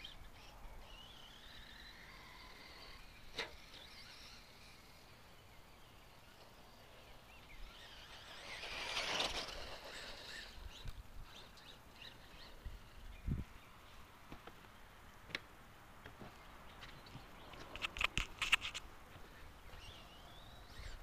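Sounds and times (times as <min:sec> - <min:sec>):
radio-controlled truck passing: 0:00.0 - 0:13.2, 0:19.7 - 0:21.0
sharp click: 0:17.5 - 0:18.8.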